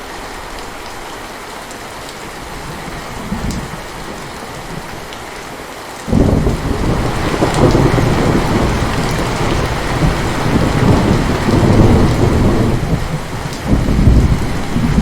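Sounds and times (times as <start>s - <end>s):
heavy rain: 0.0s - 15.0s
thunder rumbling: 6.1s - 15.0s.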